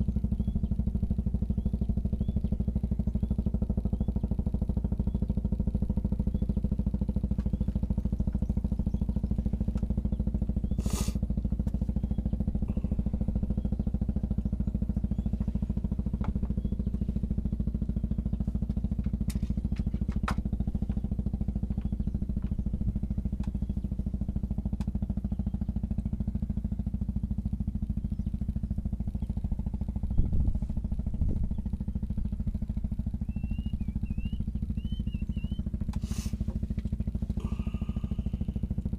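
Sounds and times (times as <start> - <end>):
small engine idling: 0.0 - 38.9
bird chirps: 33.1 - 36.2.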